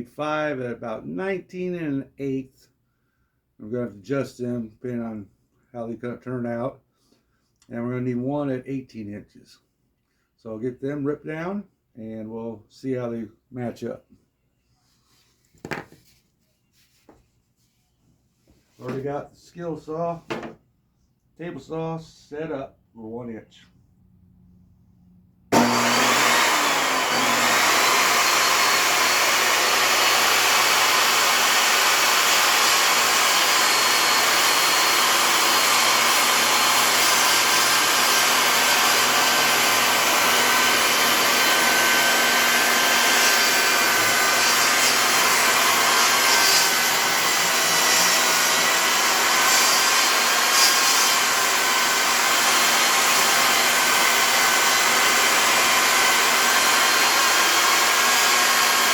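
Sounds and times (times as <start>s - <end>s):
table saw running: 25.5s - 58.9s.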